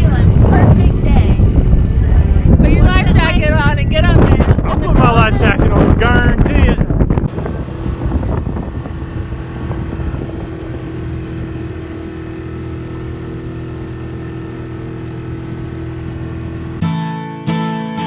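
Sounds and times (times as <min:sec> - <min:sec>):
boat motor humming: 0:07.3 - 0:16.8.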